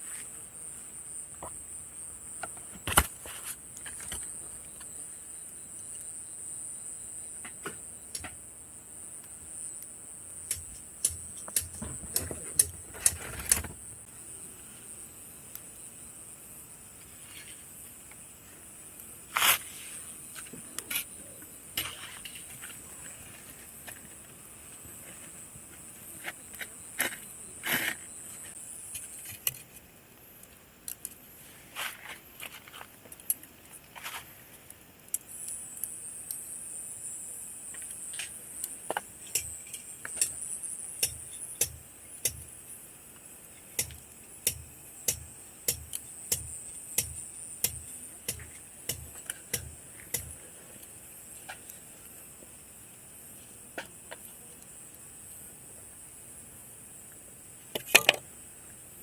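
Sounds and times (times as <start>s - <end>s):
insects chirring: 0.0s - 59.0s
campfire crackling and popping: 9.2s - 14.1s.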